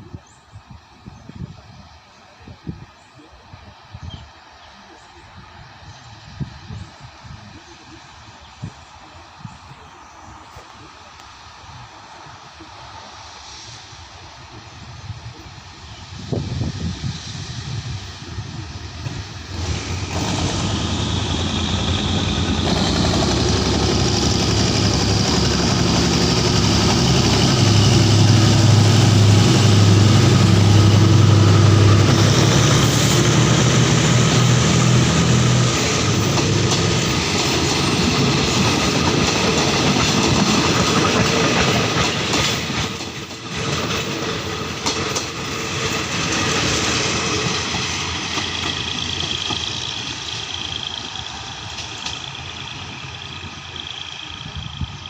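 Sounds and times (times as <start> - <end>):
coaches rumbling on rails: 14.2 - 55.0
locomotive engine humming: 16.2 - 55.0.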